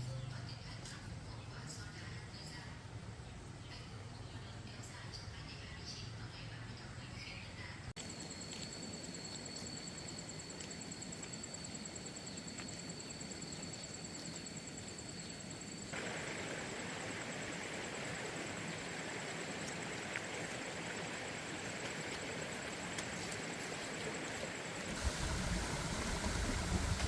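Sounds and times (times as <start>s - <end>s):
outdoor ambient noise: 0.0s - 27.0s
broad hiss: 23.4s - 27.0s.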